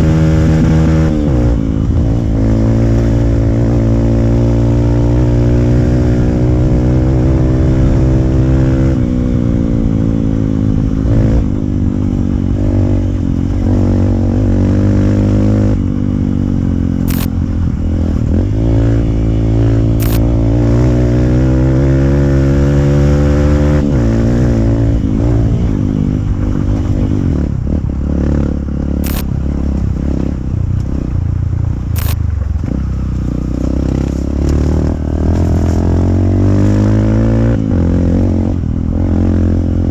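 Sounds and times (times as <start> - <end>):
motorcycle engine revving loud: 0.0 - 31.4, 32.0 - 39.9
sharp clicks: 17.0 - 17.4, 20.0 - 20.3, 29.0 - 29.3, 31.9 - 32.2.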